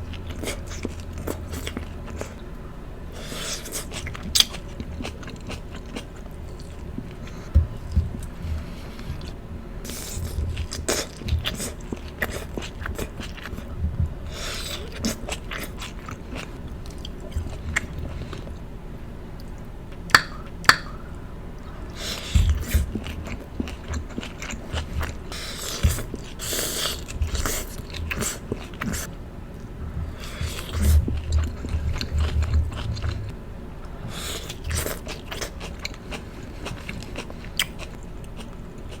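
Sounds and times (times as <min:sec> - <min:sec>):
close-miked chewing: 0:00.0 - 0:18.7, 0:19.3 - 0:39.0
wet mouth clicks and smacks: 0:20.1 - 0:21.0.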